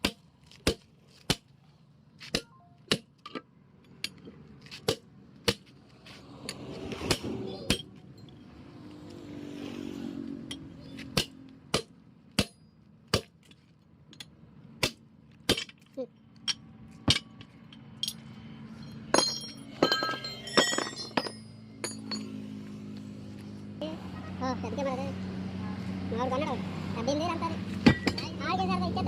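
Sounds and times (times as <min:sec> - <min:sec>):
metal tools clinking: 0:03.2 - 0:04.8, 0:10.4 - 0:11.1, 0:15.6 - 0:22.6, 0:27.8 - 0:28.3.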